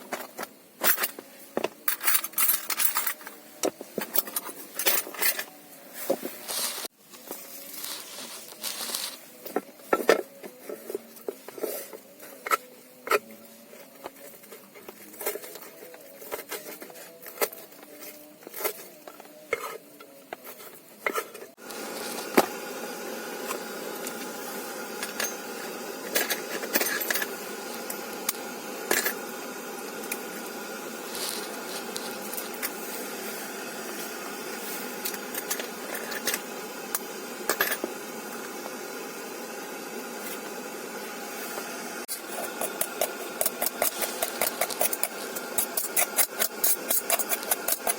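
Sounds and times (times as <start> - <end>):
utensils clinking on metal dishes: 0.8 - 3.4, 4.0 - 5.6, 25.0 - 29.2, 42.3 - 47.9
steady hiss: 21.5 - 47.9.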